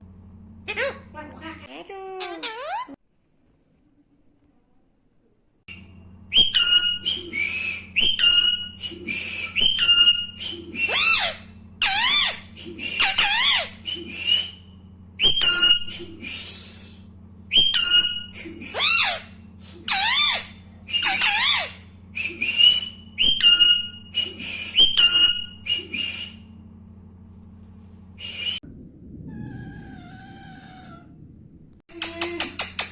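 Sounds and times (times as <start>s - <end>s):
low hum: 0.0s - 2.2s, 3.7s - 32.9s
parakeet whistling and calling: 5.8s - 16.8s, 17.5s - 26.4s.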